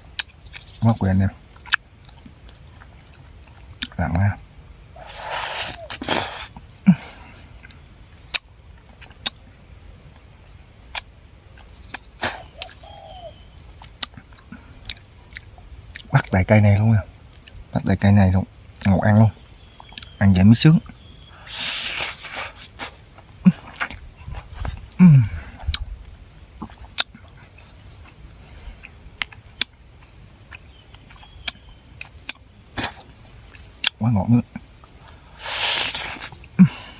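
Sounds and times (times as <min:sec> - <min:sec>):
mouth clicks and smacks chewing: 0:00.1 - 0:00.8, 0:01.5 - 0:04.2, 0:07.6 - 0:09.5, 0:10.1 - 0:16.4, 0:17.3 - 0:17.7, 0:19.6 - 0:20.2, 0:20.8 - 0:36.8.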